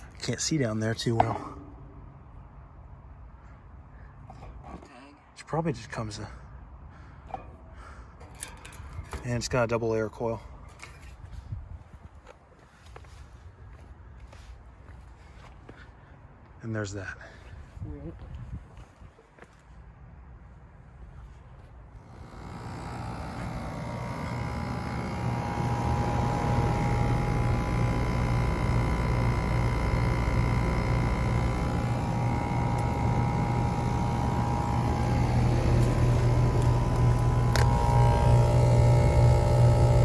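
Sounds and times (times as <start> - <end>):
heat pump humming: 0.0 - 2.3, 22.0 - 40.0.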